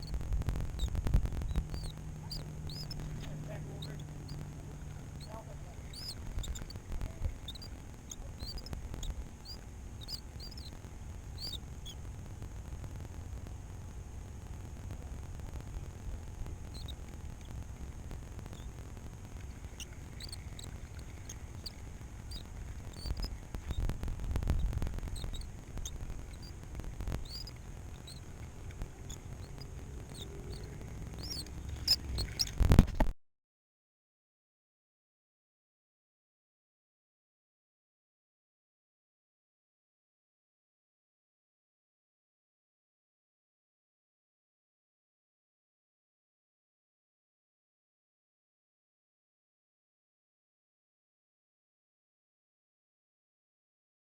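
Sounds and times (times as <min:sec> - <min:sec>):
small bird chirping: 0:00.0 - 0:12.1, 0:15.7 - 0:33.1
steady low rumble: 0:00.0 - 0:33.1.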